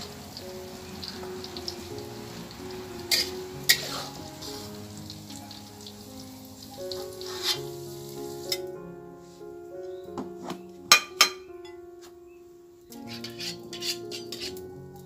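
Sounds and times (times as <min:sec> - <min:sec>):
food sizzling in hot oil: 0:00.0 - 0:08.8, 0:12.9 - 0:15.0
calm piano music: 0:00.0 - 0:15.0.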